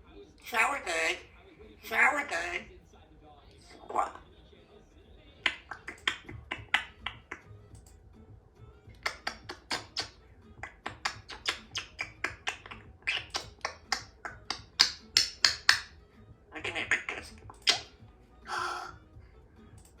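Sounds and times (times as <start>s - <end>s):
parrot harsh call: 3.8s - 4.2s, 16.6s - 17.9s, 18.5s - 19.0s
parrot clicking: 5.4s - 8.0s, 8.9s - 16.0s, 16.6s - 18.9s.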